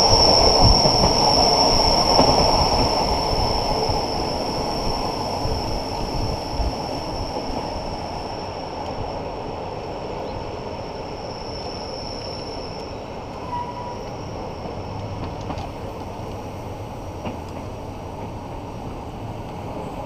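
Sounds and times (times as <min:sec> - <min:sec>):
train wheels rumbling: 0:00.0 - 0:20.0
high wheel squeal: 0:10.9 - 0:14.6.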